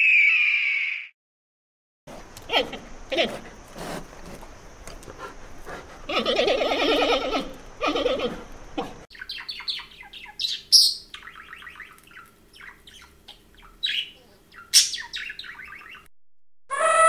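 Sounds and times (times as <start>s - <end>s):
bleating animal call: 6.1s - 8.4s, 16.7s - 17.0s
high bird-like chirping: 9.1s - 16.1s.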